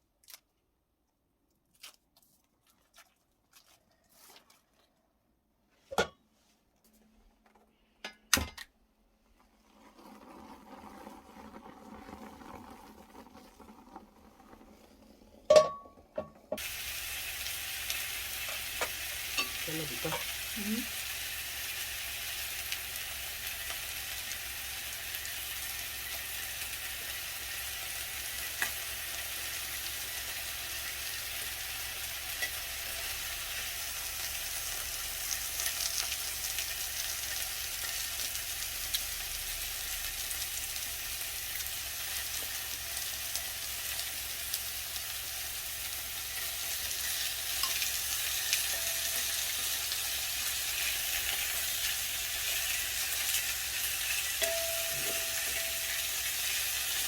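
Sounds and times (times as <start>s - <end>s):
beef sizzling in a pan: 16.6s - 57.0s.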